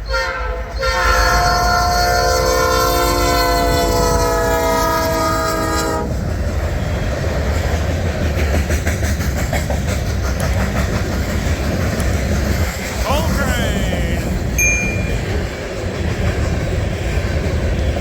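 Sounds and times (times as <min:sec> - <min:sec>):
locomotive air horn: 0:00.1 - 0:06.1
train rumbling past: 0:00.6 - 0:18.0.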